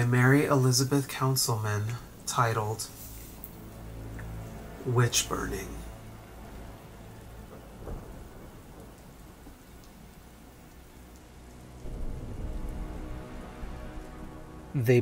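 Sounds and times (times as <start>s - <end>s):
steady rain: 0.0s - 15.0s
low roll of thunder: 7.1s - 15.0s.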